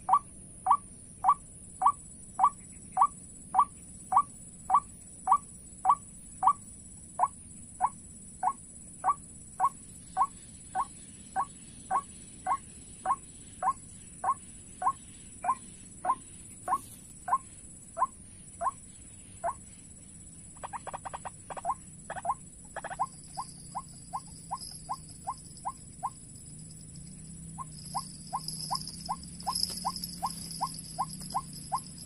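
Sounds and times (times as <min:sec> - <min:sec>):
waterhen calls: 0:27.6 - 0:31.9.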